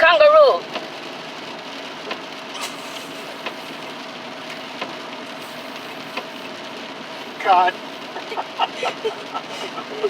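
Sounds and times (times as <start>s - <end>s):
road and rain noise in car: 0.0s - 10.0s.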